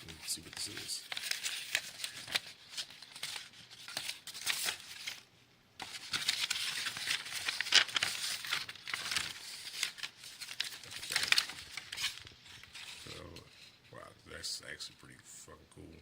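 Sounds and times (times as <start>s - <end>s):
packaging tearing and crinkling: 0.0s - 5.2s, 5.8s - 13.2s.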